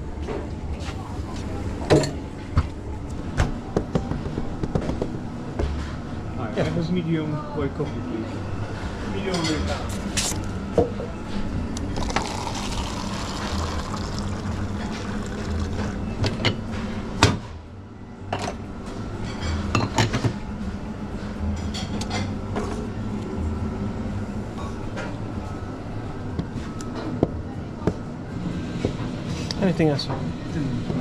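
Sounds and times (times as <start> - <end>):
cups and dishes clinking: 0.9 - 2.2, 12.0 - 16.6
coffee machine humming: 0.9 - 2.7, 11.8 - 17.1
liquid pouring into cup: 11.9 - 16.4.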